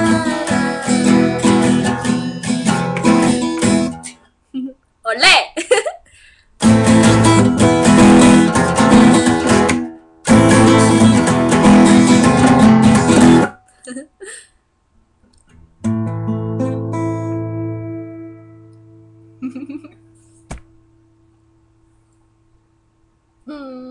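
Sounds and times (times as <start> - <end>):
strummed acoustic guitar: 0.0 - 4.2, 6.6 - 13.7, 15.5 - 19.4.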